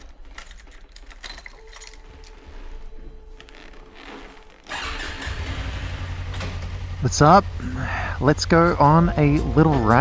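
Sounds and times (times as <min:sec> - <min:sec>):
light clicks and metallic clinks: 0:00.0 - 0:02.4.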